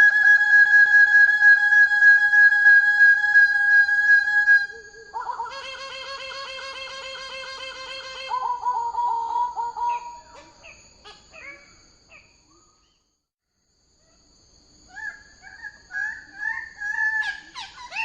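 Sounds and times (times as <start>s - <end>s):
bird calling with ringing notes: 3.3s - 13.1s, 14.9s - 18.0s.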